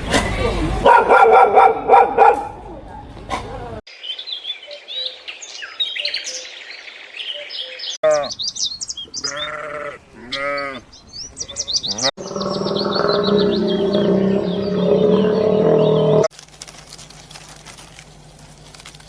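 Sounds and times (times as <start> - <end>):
small birds chirping: 3.9 - 16.3
farm animal bleating: 9.2 - 10.9.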